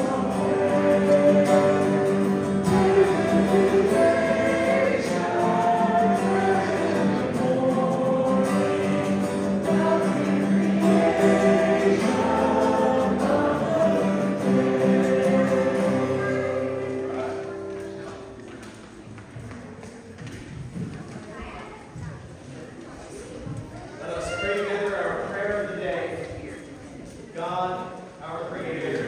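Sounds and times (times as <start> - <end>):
congregation singing a hymn: 0.0 - 18.4.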